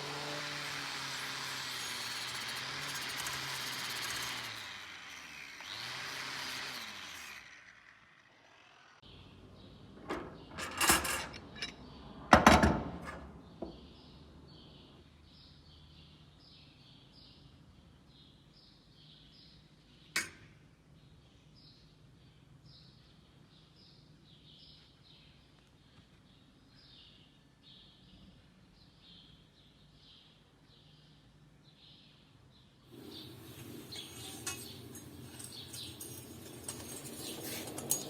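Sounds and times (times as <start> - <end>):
electric power tool scrubbing: 0.0 - 9.0, 32.9 - 38.0
metal knocking and clattering: 10.0 - 13.8.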